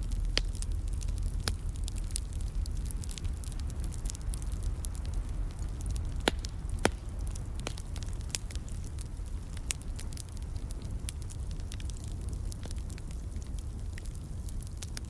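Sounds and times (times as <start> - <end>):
low steady rumble: 0.0 - 15.0
wood fire crackling and popping: 0.0 - 15.0.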